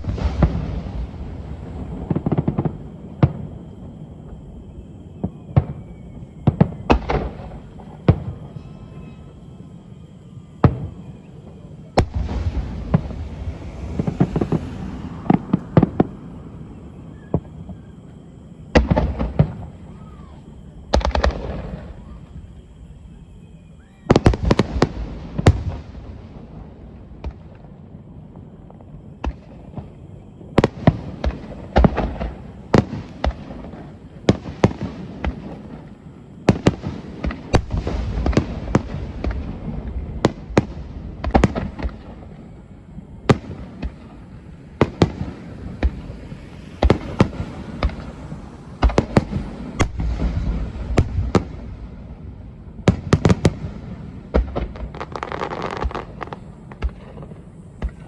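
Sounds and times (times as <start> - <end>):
fireworks bursting with bangs: 0.0 - 58.0
fireworks crackle: 0.0 - 58.0.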